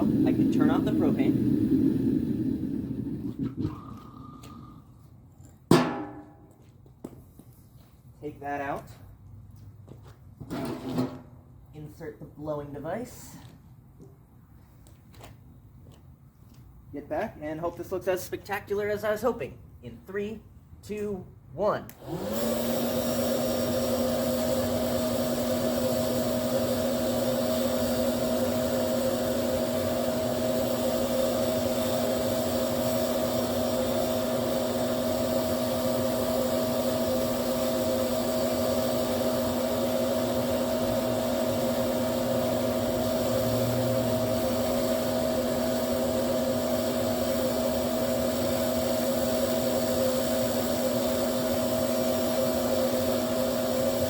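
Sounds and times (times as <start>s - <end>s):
electric blower running: 0.0s - 4.8s, 21.9s - 54.0s.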